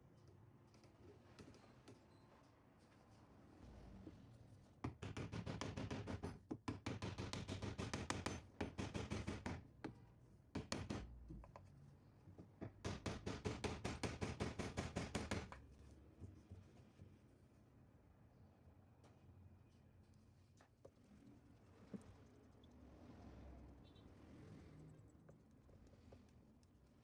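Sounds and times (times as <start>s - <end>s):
rapid sharp knocks: 4.9s - 9.6s, 10.6s - 11.1s, 12.8s - 15.6s.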